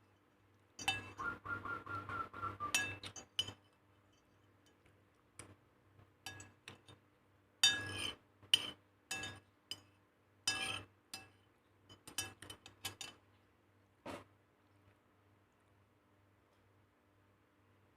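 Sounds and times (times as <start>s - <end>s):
utensils clinking against dishes: 0.8s - 1.2s, 2.7s - 3.7s, 7.6s - 9.9s, 10.5s - 13.2s.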